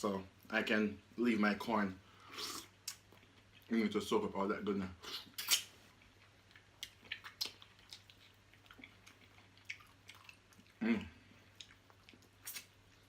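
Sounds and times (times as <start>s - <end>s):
wet chewing mouth sounds: 5.1s - 13.0s.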